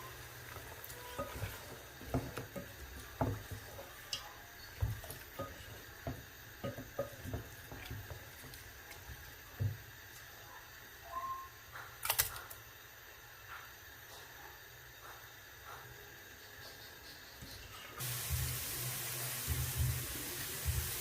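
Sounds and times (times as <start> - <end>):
utensils clinking on pots: 0.0 - 9.0.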